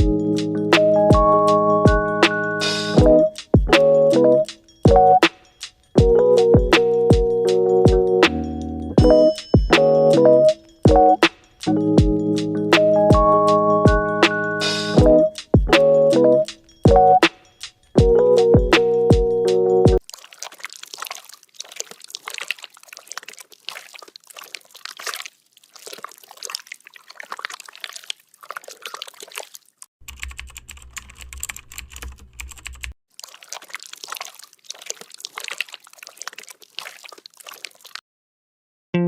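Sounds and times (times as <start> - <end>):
slime squished by hand: 20.0 - 29.8, 33.1 - 38.0.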